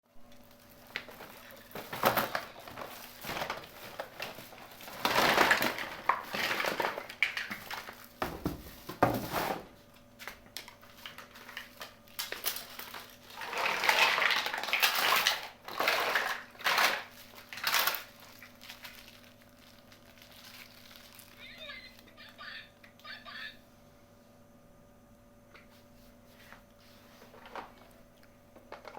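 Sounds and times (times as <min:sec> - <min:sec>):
plastic packaging crinkling: 0:00.2 - 0:09.4, 0:10.2 - 0:22.1
plastic toy pieces clattering: 0:00.4 - 0:08.0, 0:10.6 - 0:21.6.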